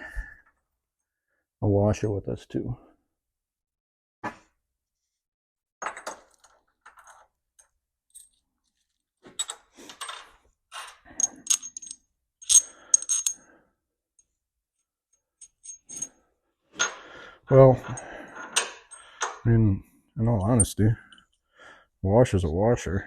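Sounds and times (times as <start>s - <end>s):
steel nuts and washers clinking: 5.8s - 13.5s, 15.2s - 16.2s, 17.8s - 19.4s, 20.3s - 21.4s.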